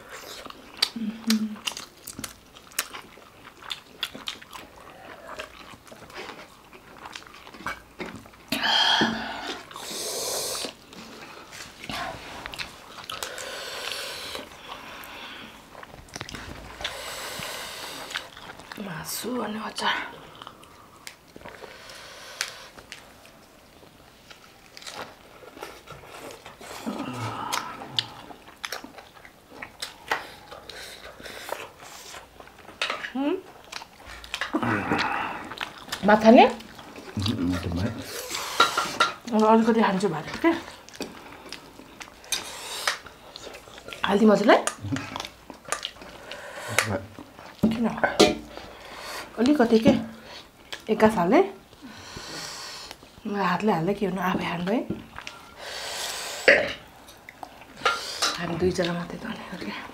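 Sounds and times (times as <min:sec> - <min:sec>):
chewing and crunching food: 0:00.0 - 0:59.9
sharp mouth clicks and crunches: 0:00.2 - 0:08.6, 0:15.8 - 0:18.8, 0:27.4 - 0:36.0, 0:40.7 - 0:47.7.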